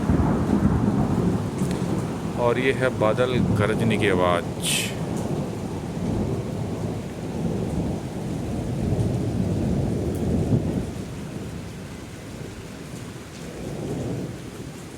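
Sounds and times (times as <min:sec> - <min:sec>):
thunder rumbling: 0:00.0 - 0:11.6
rain falling: 0:00.0 - 0:14.9.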